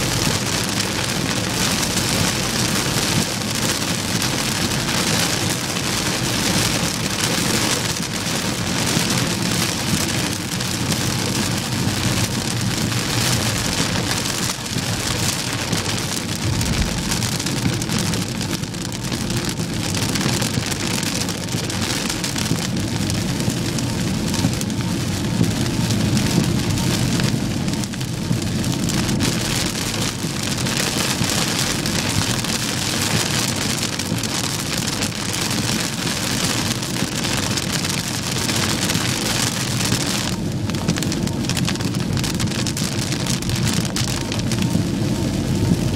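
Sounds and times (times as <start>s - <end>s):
heavy rain on a car: 0.0s - 45.9s
low road rumble: 0.0s - 45.9s.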